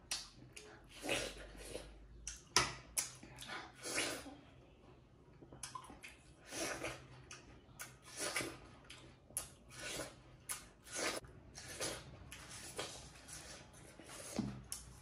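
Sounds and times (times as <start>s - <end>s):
biting and chewing watermelon: 5.4s - 15.0s.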